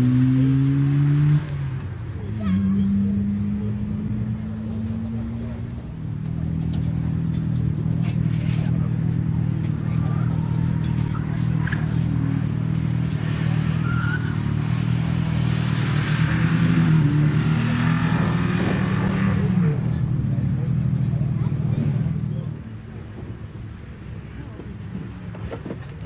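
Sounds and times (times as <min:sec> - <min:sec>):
car engine running under load: 0:00.0 - 0:26.0.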